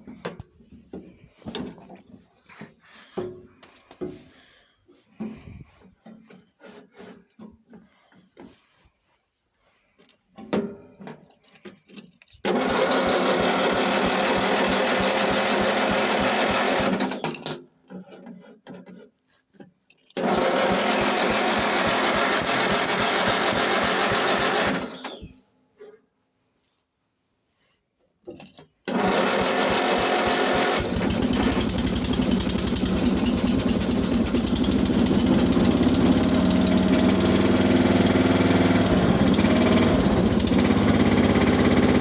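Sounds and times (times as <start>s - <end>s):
engine cranking without starting: 12.4s - 17.6s, 20.2s - 25.3s, 28.9s - 42.0s.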